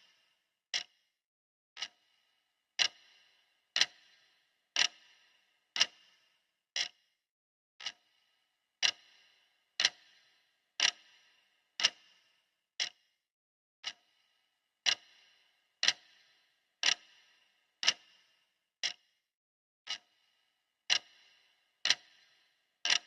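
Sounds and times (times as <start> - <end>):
clock ticking: 1.8 - 2.0, 2.8 - 4.2, 4.8 - 5.2, 5.8 - 6.1, 6.8 - 7.0, 8.8 - 11.2, 11.8 - 12.2, 13.8 - 14.1, 14.8 - 18.2, 20.9 - 22.2.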